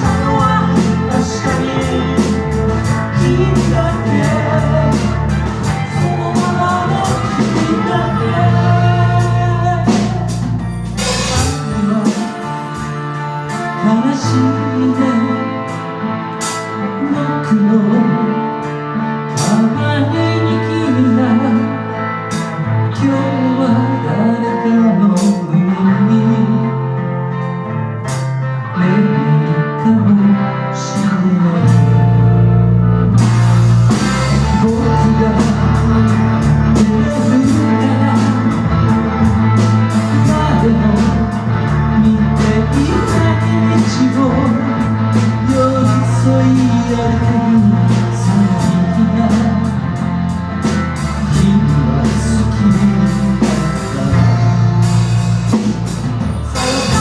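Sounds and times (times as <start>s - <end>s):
drum kit beat: 0.0s - 14.6s, 31.7s - 57.0s
bass guitar: 0.0s - 57.0s
guitar chords: 0.0s - 57.0s
live band playing: 0.0s - 57.0s.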